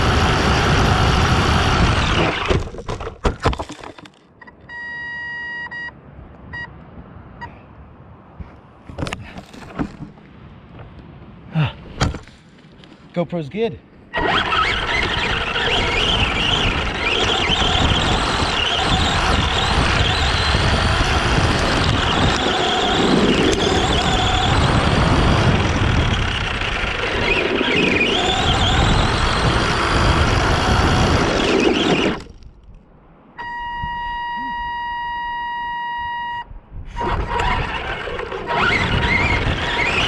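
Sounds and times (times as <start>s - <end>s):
electric motor whine: 0.0s - 2.7s, 14.2s - 32.3s, 37.0s - 40.0s
tyre and drivetrain noise: 0.0s - 7.6s, 8.3s - 13.1s, 14.1s - 32.8s, 36.9s - 40.0s.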